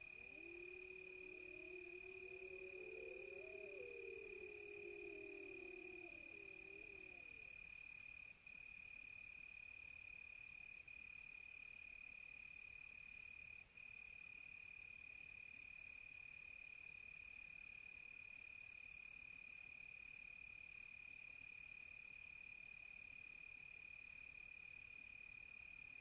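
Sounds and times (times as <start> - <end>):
higher-pitched cricket trill: 0.0 - 7.6
steady cricket trill: 0.0 - 8.2
crickets chirping: 0.0 - 8.6.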